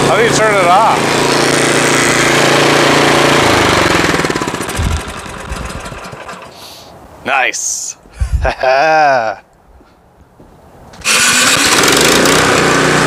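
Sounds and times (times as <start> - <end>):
engine winding down to a stop: 0.0 - 6.6, 11.0 - 13.0
snowblower engine running: 0.0 - 6.6, 11.0 - 13.0.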